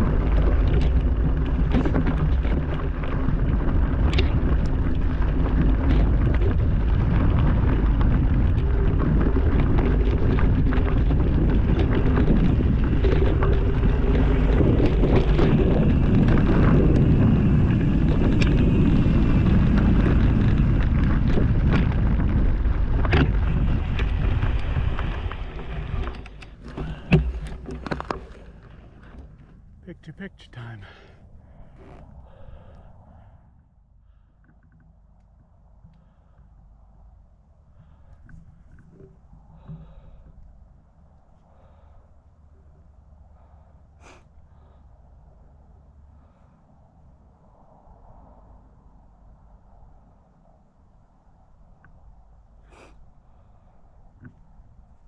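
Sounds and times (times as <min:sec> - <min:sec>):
sharp rattles and knocks: 0:00.0 - 0:29.7
wind buffeting microphone: 0:00.0 - 0:30.0
low rumble: 0:00.0 - 0:55.0.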